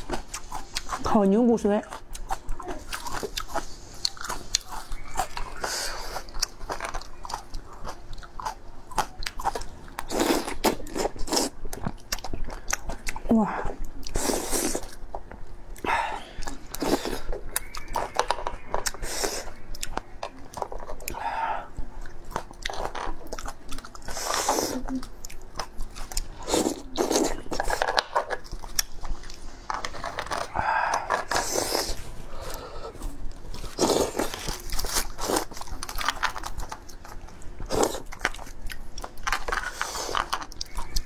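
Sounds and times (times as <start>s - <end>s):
person chewing with crunching: 0.0s - 41.0s.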